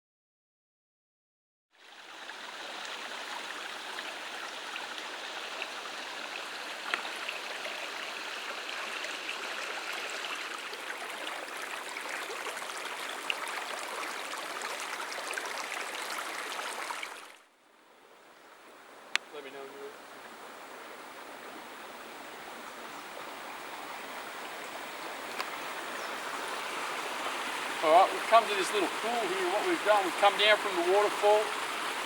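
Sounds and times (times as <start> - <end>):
water pouring over waterfall: 1.9 - 17.3, 26.2 - 32.0.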